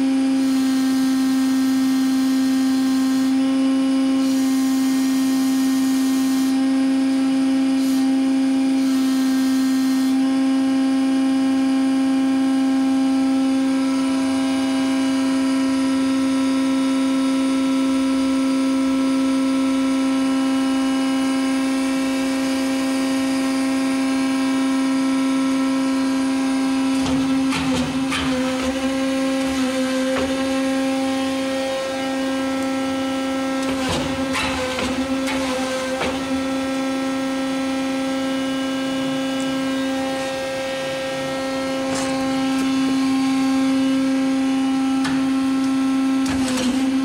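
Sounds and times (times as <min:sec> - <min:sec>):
hydraulic pump whine: 0:00.0 - 0:47.0.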